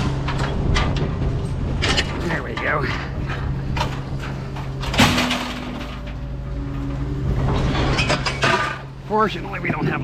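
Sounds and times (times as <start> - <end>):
low mechanical hum: 0.0 - 10.0
scrap metal clanging: 1.8 - 6.3, 7.4 - 9.0.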